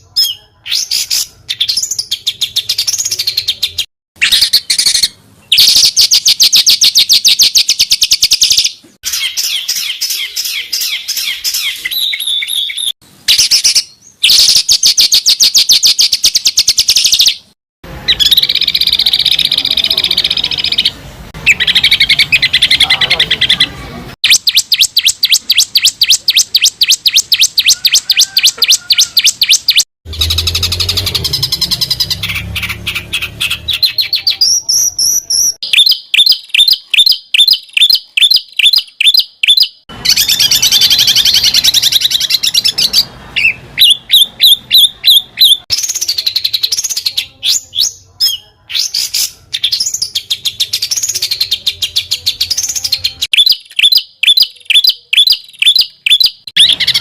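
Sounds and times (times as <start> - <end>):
songbird singing trills: 0.0 - 57.0.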